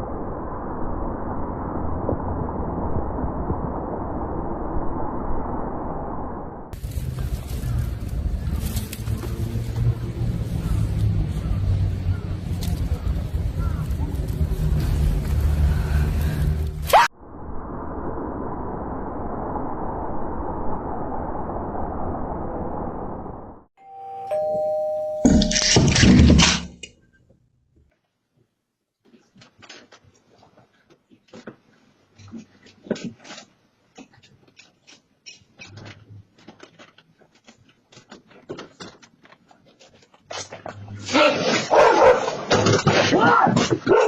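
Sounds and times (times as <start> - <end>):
two-note doorbell chime: 23.8 - 25.8.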